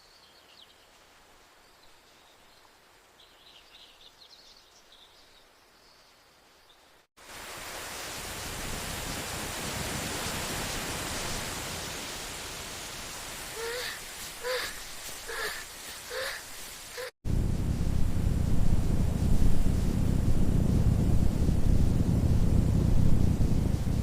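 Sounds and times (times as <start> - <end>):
heavy rain downpour hiss: 0.0 - 24.0
faint high chirping: 13.6 - 17.1.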